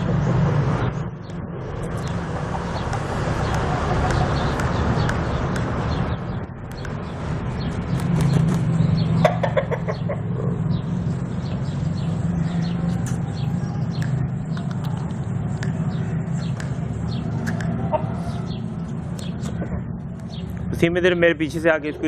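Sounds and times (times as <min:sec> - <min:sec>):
rooster clucking: 0:00.0 - 0:01.0, 0:01.6 - 0:05.8, 0:09.2 - 0:10.7, 0:16.6 - 0:18.5.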